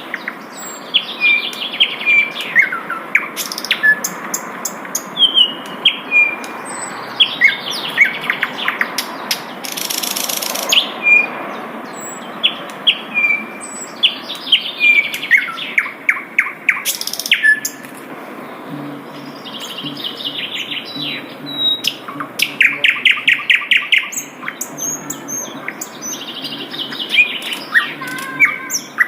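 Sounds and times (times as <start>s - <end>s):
flycatcher chirping and whistling: 9.6s - 11.3s, 16.7s - 17.8s.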